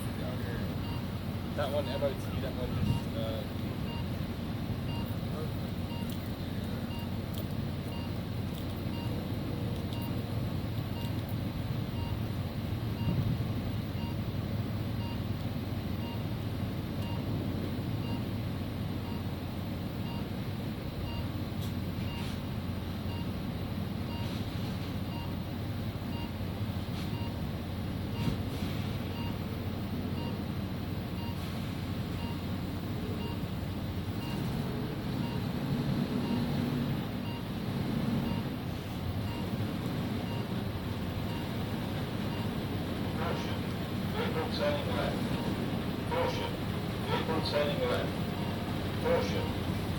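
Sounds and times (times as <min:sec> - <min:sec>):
lorry engine running: 0:00.0 - 0:49.9
faint short beeps: 0:48.4 - 0:49.6.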